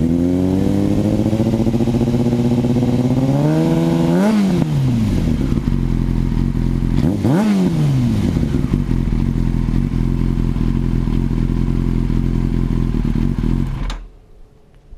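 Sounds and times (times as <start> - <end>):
motorcycle engine idling and revving: 0.0 - 14.2.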